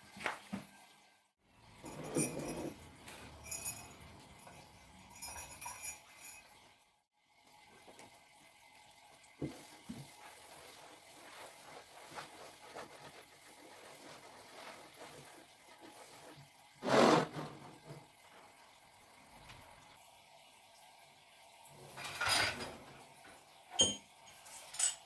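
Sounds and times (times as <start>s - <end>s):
dishes handling noises: 1.8s - 6.4s.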